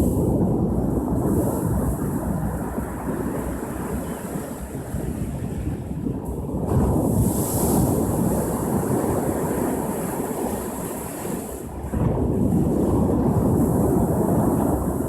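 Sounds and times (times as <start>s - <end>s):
ocean surf on shore: 6.7s - 15.0s.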